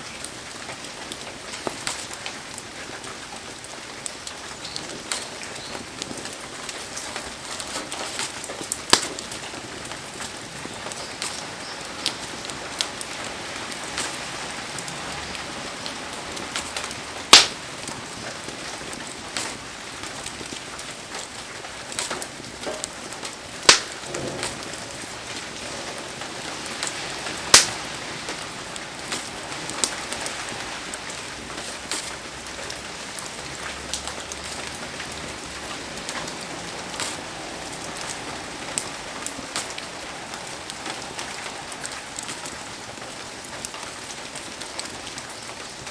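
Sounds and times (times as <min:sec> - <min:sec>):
heavy rain hissing: 0:00.0 - 0:45.9
sharp pops: 0:17.3 - 0:17.6, 0:23.7 - 0:25.7, 0:26.9 - 0:27.8.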